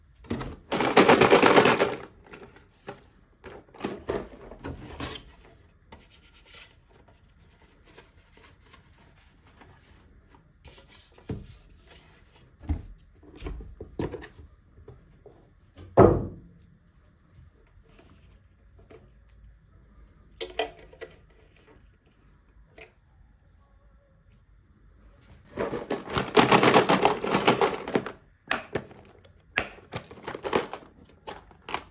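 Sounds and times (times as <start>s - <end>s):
packaging rustling: 25.5s - 28.2s, 29.9s - 31.9s.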